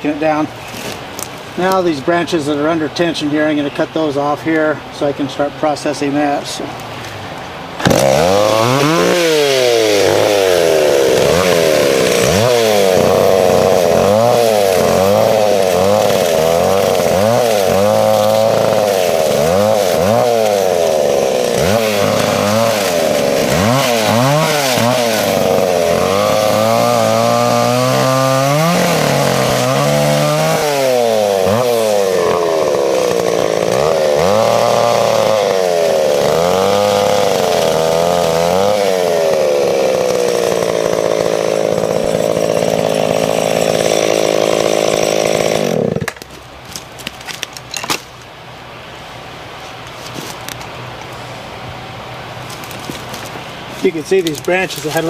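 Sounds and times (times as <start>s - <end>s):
chainsaw revving: 7.8s - 46.2s, 52.5s - 55.0s.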